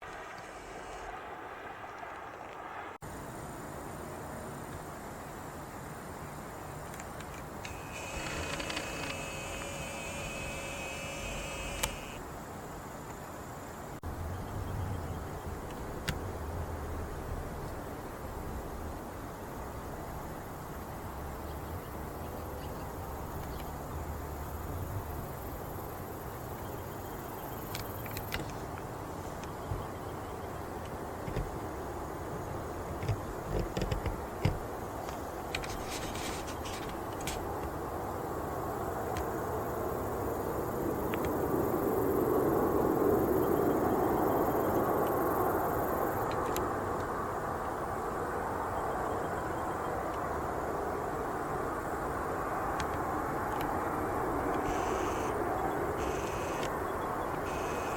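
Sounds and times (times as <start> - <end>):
high insect-like whine: 3.1 - 14.4, 34.8 - 46.8, 47.5 - 57.9
sharp clicks: 6.9 - 12.2, 56.0 - 56.8.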